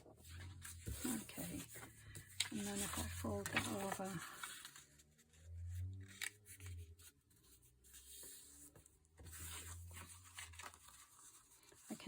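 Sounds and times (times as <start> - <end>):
paper rustling and tapping: 0.0 - 4.8, 8.2 - 12.0.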